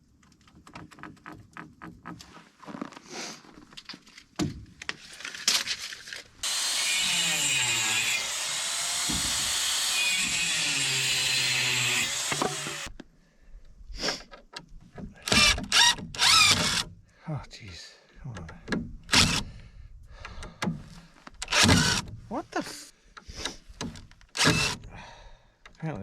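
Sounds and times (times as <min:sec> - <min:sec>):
power drill driving screw into wood: 0:06.4 - 0:12.9, 0:15.2 - 0:16.9, 0:19.1 - 0:19.4, 0:21.4 - 0:22.1, 0:24.4 - 0:24.8.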